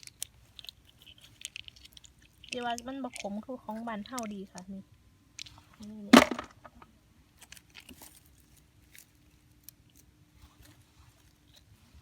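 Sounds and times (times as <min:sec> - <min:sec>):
faint chewing: 0:00.0 - 0:04.7, 0:07.4 - 0:12.0.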